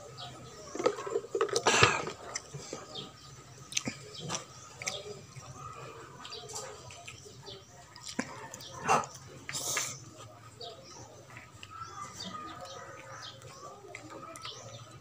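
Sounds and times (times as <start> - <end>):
person chewing food: 3.6 - 10.0.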